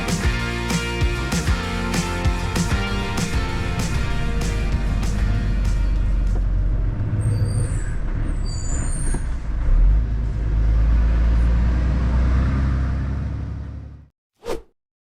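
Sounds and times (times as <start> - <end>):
lorry diesel engine running: 0.0 - 7.2.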